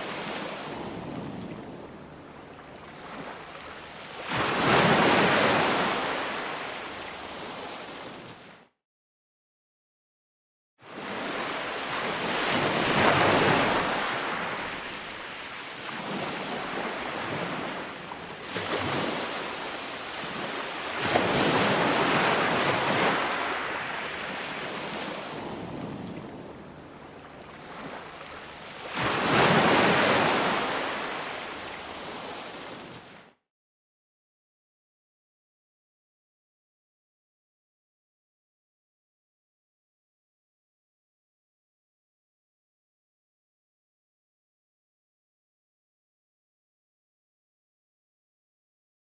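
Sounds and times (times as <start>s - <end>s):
ocean waves breaking: 0.0s - 8.6s, 10.9s - 33.3s.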